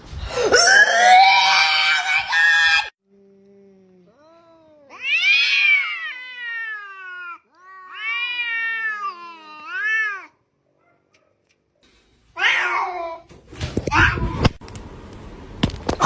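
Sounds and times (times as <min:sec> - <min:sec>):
cat yowling meows: 0:04.3 - 0:10.4, 0:12.4 - 0:13.3.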